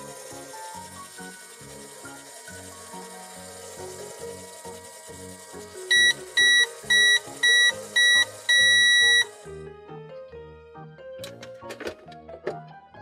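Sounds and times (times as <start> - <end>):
toy microwave beeping: 0.0 - 9.5
background music: 0.0 - 13.0.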